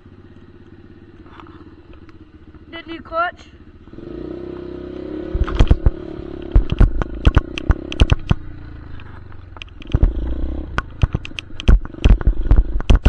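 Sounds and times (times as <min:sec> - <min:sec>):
dirt bike engine running: 0:00.0 - 0:13.0
sharp knocks and thumps: 0:05.2 - 0:13.0.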